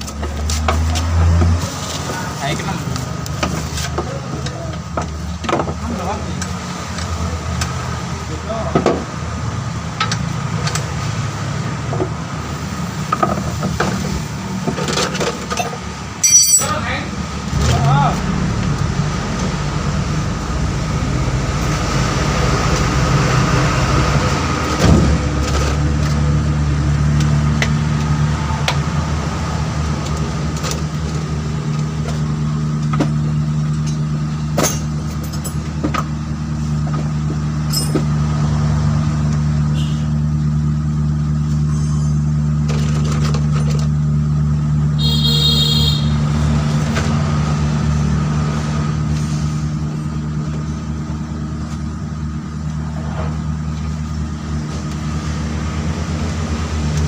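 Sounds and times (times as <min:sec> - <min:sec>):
high pulsing tone: 0:16.2 - 0:16.8
vehicle engine idling: 0:48.9 - 0:57.0.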